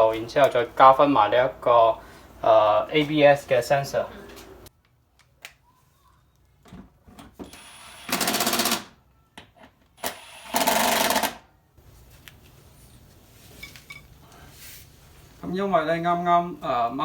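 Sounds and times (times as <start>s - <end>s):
power wrench rattling: 7.5s - 8.9s, 10.0s - 11.4s.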